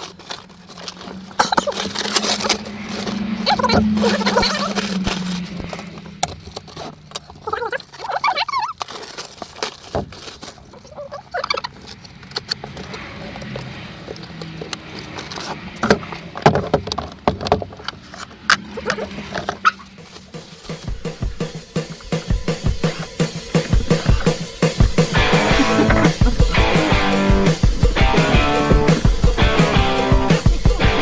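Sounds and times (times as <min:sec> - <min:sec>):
plastic packaging crackling: 0:00.0 - 0:15.4
paper rustling: 0:00.0 - 0:15.7, 0:18.8 - 0:26.5
muffled vocal sounds: 0:22.8 - 0:26.7.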